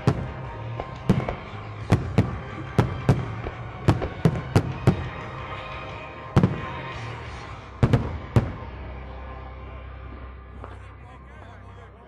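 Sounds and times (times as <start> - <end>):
firework bangs: 0.0 - 8.8.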